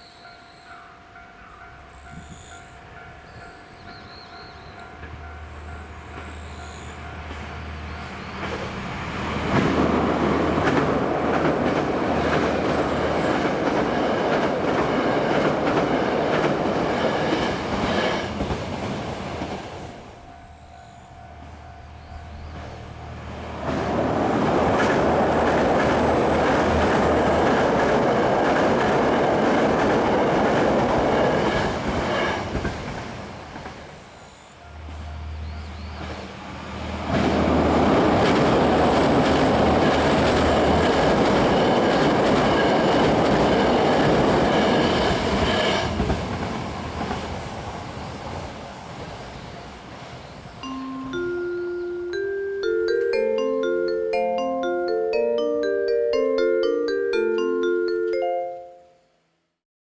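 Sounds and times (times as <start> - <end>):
railcars passing at speed: 0.0 - 58.2.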